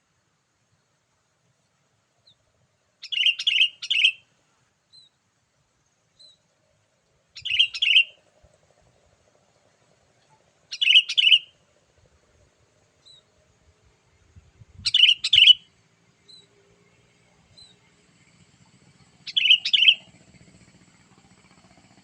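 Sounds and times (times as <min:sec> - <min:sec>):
faint single bird chirps: 0:03.0 - 0:04.3, 0:07.4 - 0:08.2, 0:10.2 - 0:11.6, 0:14.8 - 0:16.5, 0:19.3 - 0:20.0.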